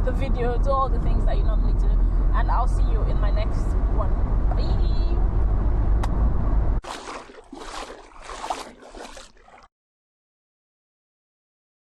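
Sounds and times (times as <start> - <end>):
car interior road noise: 0.0 - 6.8.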